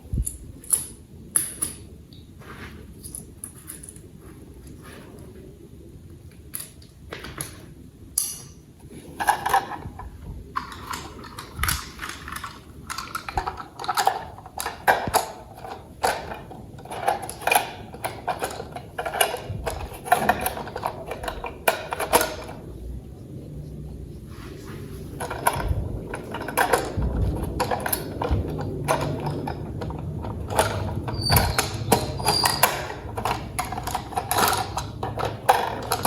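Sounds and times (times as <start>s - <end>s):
plastic toy parts clicking: 9.2s - 22.6s, 25.2s - 36.0s
rustling: 23.2s - 29.5s.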